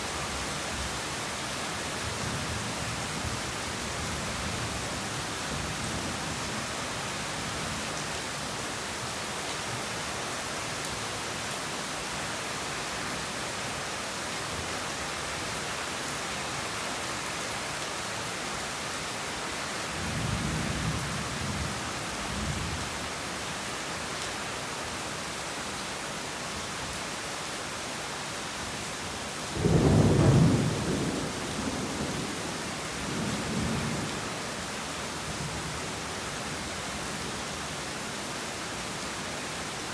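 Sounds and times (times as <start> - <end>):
heavy rain falling: 0.0 - 39.9
thunder rumbling: 29.6 - 34.2.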